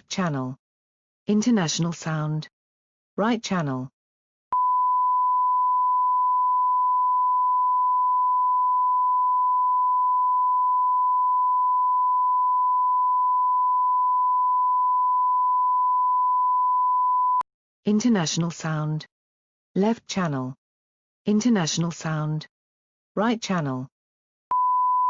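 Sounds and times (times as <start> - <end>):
sine-wave test tone: 4.6 - 17.4, 24.5 - 25.0.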